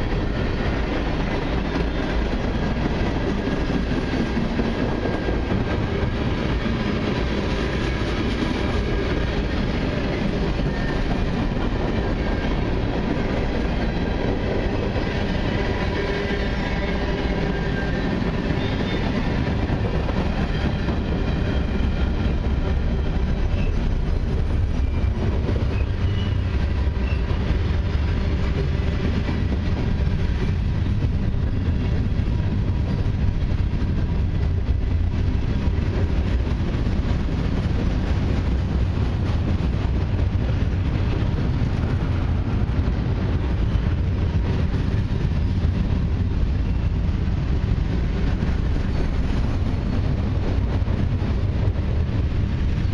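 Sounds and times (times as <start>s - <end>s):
freight train rolling past: 0.0s - 52.9s.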